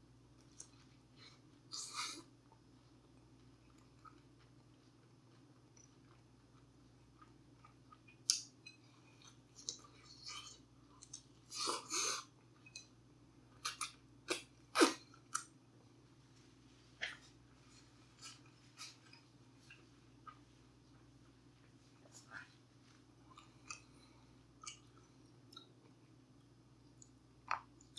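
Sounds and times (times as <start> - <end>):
person chewing food: 0.4 - 13.0, 16.9 - 21.4, 22.0 - 26.0.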